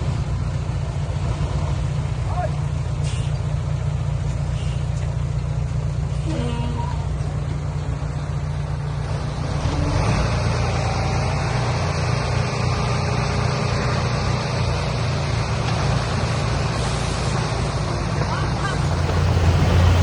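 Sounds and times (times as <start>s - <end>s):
diesel machinery engine drone: 0.0s - 20.0s
constant rushing noise: 17.8s - 20.0s.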